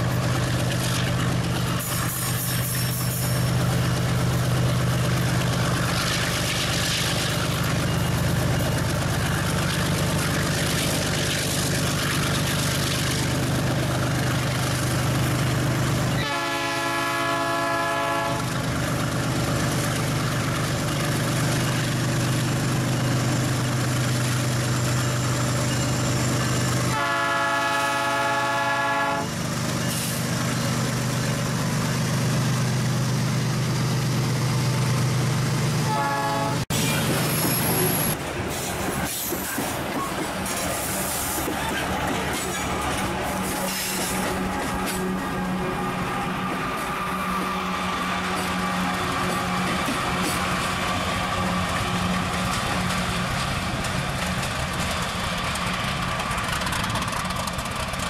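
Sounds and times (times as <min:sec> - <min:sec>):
diesel train engine rumble: 0:00.0 - 0:58.0
train horn blasts: 0:16.1 - 0:18.6, 0:26.9 - 0:29.4, 0:35.8 - 0:36.8.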